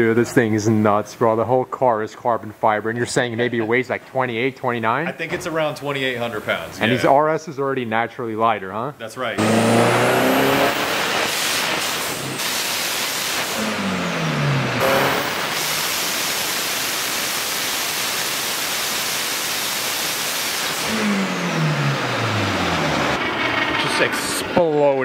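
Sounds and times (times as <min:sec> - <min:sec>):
car engine revving on dyno: 0:09.4 - 0:24.6.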